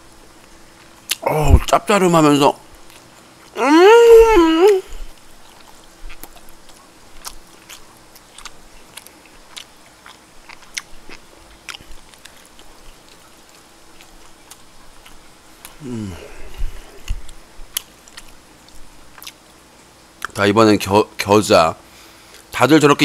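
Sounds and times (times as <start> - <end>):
faint steady hum: 0.0 - 23.0
chewing with wet mouth clicks: 2.9 - 3.6, 5.1 - 15.8, 17.0 - 20.4
person humming mmm while tasting: 3.5 - 5.1, 15.7 - 17.2.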